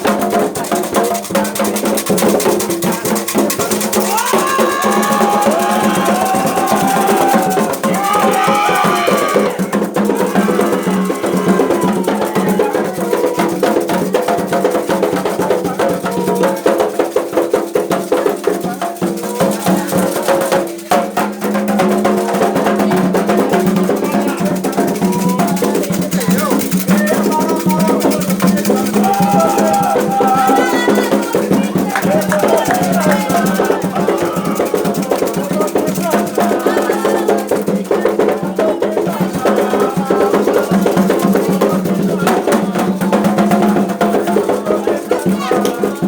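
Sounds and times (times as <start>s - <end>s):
hand drums: 0.0s - 46.0s
sharp struck percussion: 0.0s - 46.0s
voices chanting: 3.7s - 14.0s, 21.2s - 46.0s.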